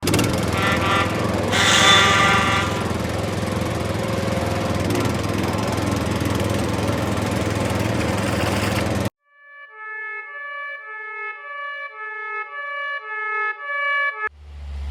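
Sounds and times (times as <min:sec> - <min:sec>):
small engine chugging: 0:00.0 - 0:09.1
horn-like tones: 0:00.3 - 0:07.1.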